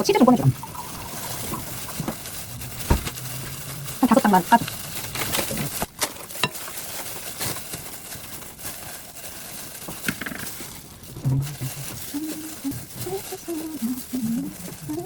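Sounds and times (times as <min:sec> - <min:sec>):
low murmur of voice: 0:11.2 - 0:15.0.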